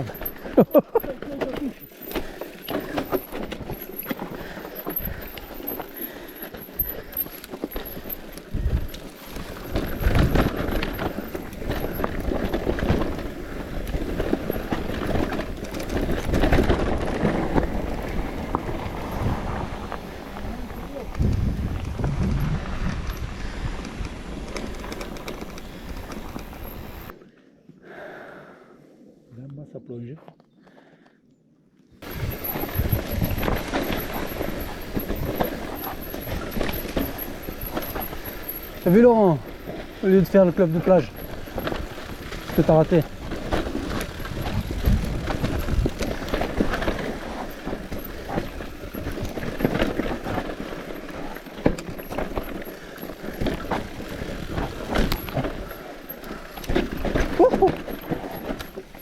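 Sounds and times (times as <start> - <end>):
bike knocks and rattles: 0.0 - 27.1, 32.0 - 59.0
bike tyre rumble: 0.0 - 27.2, 32.0 - 59.0
wind on microphone: 16.0 - 24.4, 32.0 - 35.4, 43.9 - 46.9.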